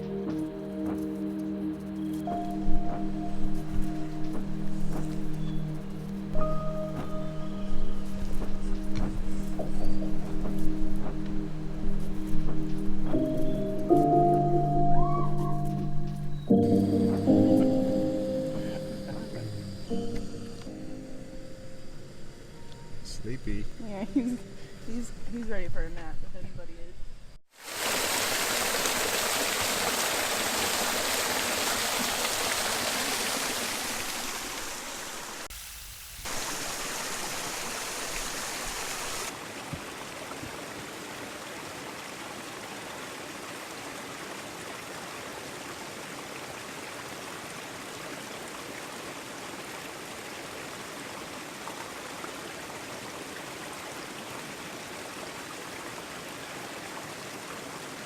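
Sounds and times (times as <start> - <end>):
stream water rushing: 0.0 - 20.8, 27.5 - 58.0.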